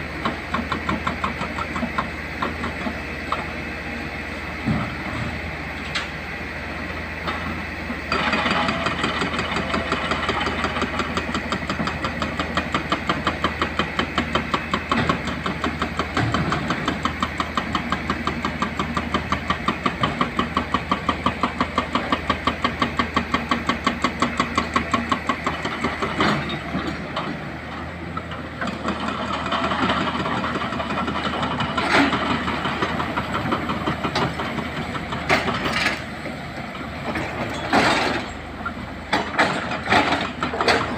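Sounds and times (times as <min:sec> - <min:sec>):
diesel engine running: 0:00.0 - 0:40.9
hydraulic rock breaker hammering: 0:00.1 - 0:03.5, 0:08.1 - 0:27.3.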